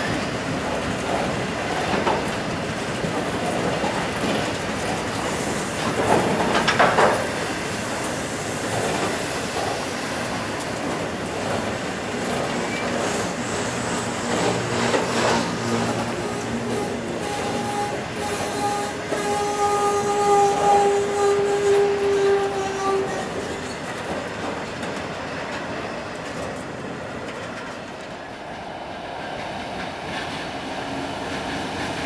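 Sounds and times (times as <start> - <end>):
freight train rolling by: 0.0 - 32.0
wheels clattering over track: 0.8 - 7.4
wheel squeal: 12.6 - 23.9.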